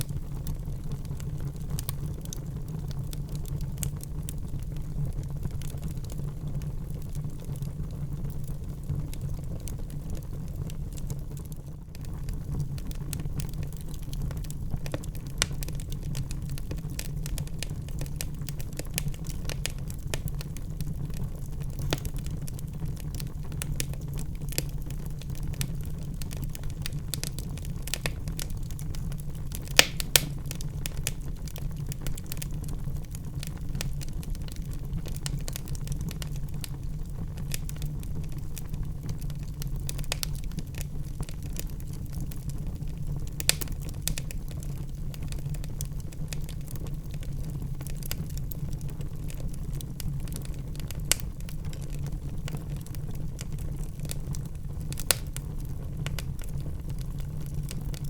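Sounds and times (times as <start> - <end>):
low rumble of flames: 0.0 - 58.0
wood fire crackling: 0.0 - 58.0
loud fire pops: 12.2 - 47.2, 54.0 - 56.5.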